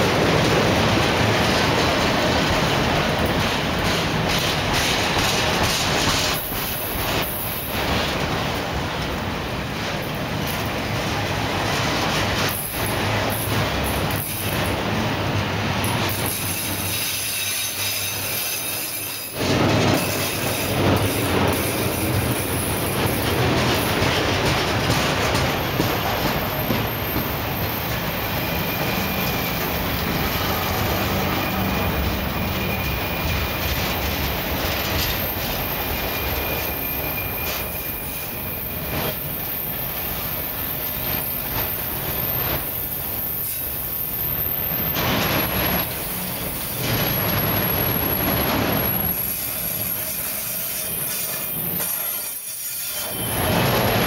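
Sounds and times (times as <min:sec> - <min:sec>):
freight cars rumbling on rails: 0:00.0 - 0:52.0, 0:53.0 - 0:54.0
high-pitched wheel squeals: 0:25.6 - 0:54.0.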